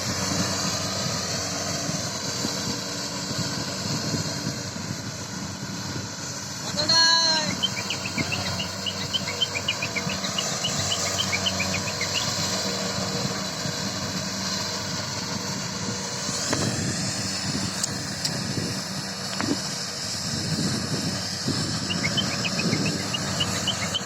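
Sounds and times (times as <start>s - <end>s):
engine running: 0.0s - 24.0s
short high chirps: 7.5s - 12.5s, 21.8s - 24.0s.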